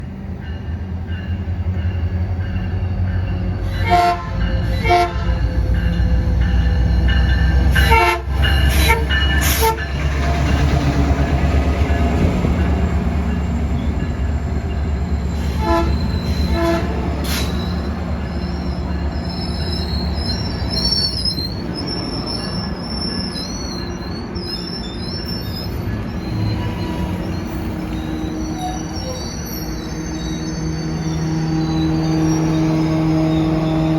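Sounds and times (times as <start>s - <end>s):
train rumbling past: 0.0s - 33.9s
train horn blasts: 3.6s - 5.5s, 7.7s - 10.0s, 15.4s - 17.1s
wheel squeals: 14.7s - 33.9s.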